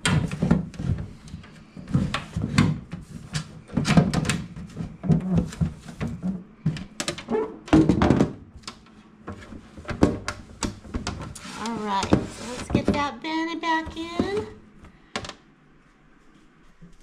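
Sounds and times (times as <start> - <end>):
items knocking in refrigerator: 0.0 - 8.6, 9.3 - 13.1, 13.7 - 14.6.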